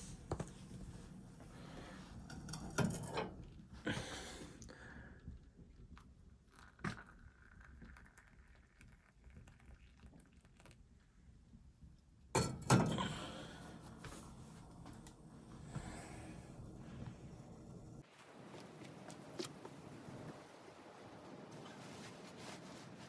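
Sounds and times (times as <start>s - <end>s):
soft rustling: 18.0s - 23.0s.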